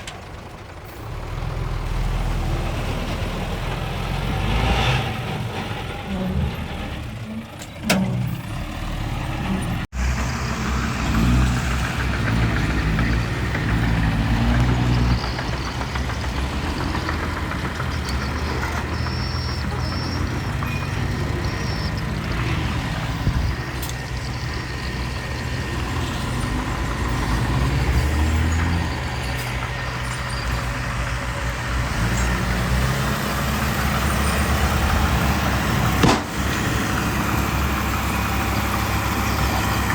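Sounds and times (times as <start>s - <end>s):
diesel engines running: 0.0s - 39.9s.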